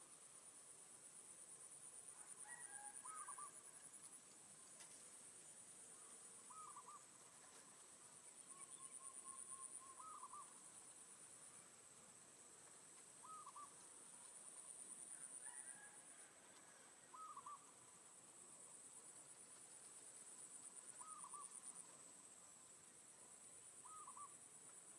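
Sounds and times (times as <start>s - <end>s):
bird calls: 6.5s - 7.1s, 8.4s - 10.6s, 13.2s - 13.8s, 17.1s - 17.7s, 21.0s - 21.6s, 23.8s - 24.3s.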